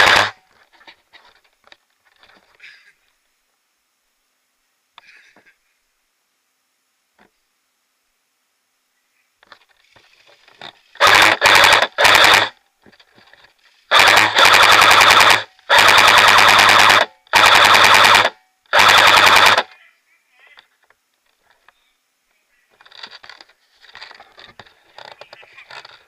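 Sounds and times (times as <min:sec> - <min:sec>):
airsoft rifle firing bursts: 0:00.0 - 0:00.4, 0:11.0 - 0:12.6, 0:13.9 - 0:19.7
gearbox whirring: 0:00.0 - 0:00.4, 0:10.3 - 0:12.6, 0:13.2 - 0:19.7.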